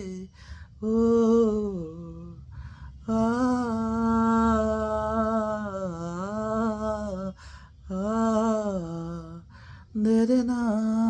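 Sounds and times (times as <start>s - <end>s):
man singing unaccompanied: 0.0s - 2.4s, 3.0s - 11.0s
man breathing in: 2.5s - 3.0s, 9.5s - 9.9s.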